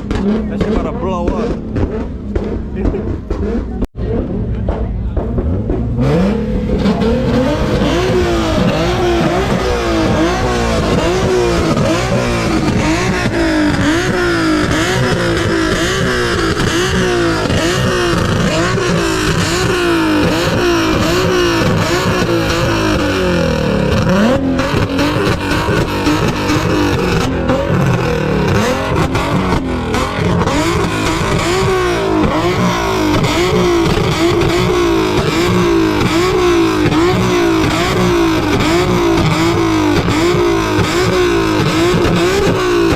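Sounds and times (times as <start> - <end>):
car engine revving hard: 0.0 - 42.9.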